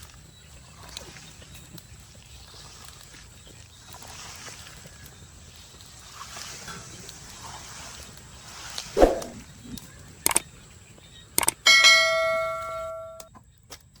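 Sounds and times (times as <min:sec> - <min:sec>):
sharp clicks: 0:11.4 - 0:11.6
bell-like ding: 0:11.7 - 0:13.3.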